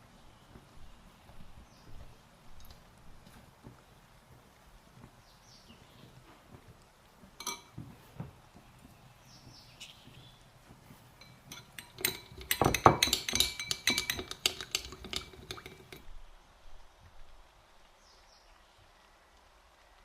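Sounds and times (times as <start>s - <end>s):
dishes and cutlery clinking: 7.4s - 8.0s, 10.8s - 16.0s.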